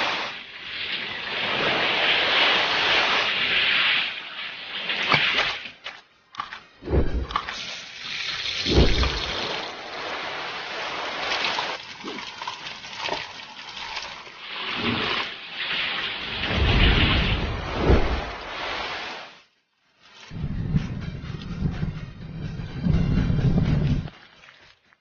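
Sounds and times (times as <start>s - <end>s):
flames whooshing up: 16.4s - 18.5s.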